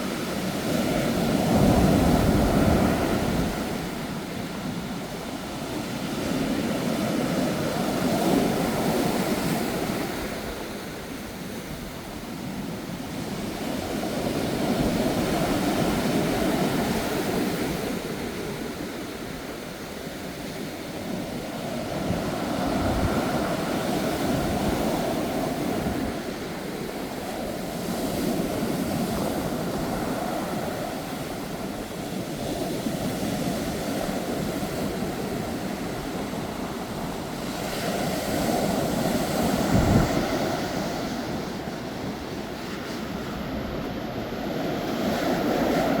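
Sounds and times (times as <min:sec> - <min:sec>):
strong wind: 0:00.0 - 0:46.0
surf crashing: 0:33.5 - 0:46.0.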